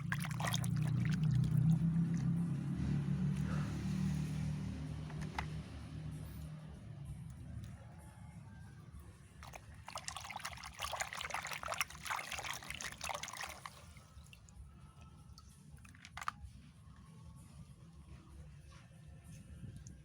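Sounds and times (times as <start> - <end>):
water pouring and splashing: 0.0 - 2.6, 9.4 - 14.7, 15.4 - 16.4.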